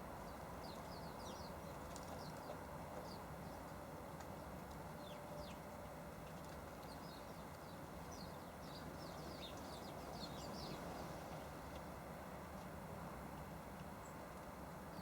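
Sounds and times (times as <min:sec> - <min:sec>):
small birds chirping: 0:00.3 - 0:03.7, 0:06.8 - 0:11.1.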